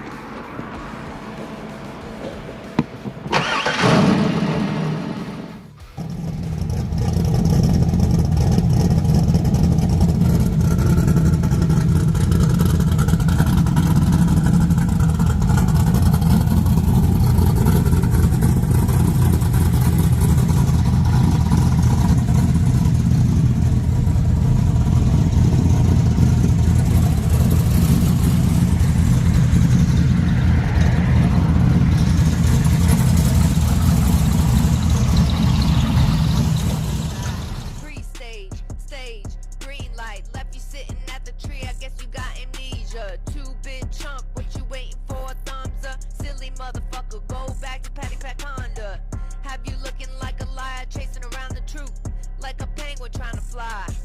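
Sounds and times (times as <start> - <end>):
car engine running loud: 0.0 - 38.0.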